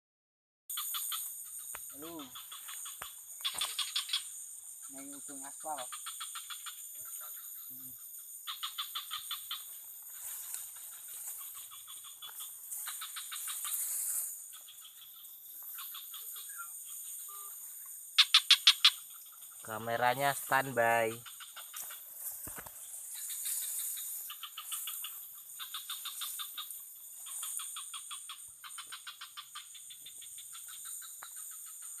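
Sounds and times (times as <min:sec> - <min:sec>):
animal trilled clicking calls: 0:00.7 - 0:19.7, 0:21.0 - 0:32.0
high-pitched insect drone: 0:00.7 - 0:32.0
steady high hiss: 0:00.8 - 0:21.2, 0:21.8 - 0:28.9.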